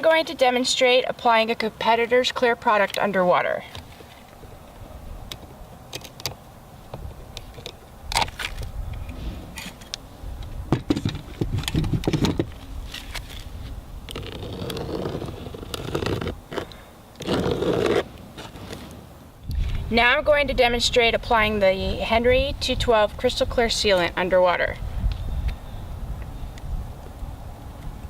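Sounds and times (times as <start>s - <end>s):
sealant clicking and scraping: 14.1s - 18.9s.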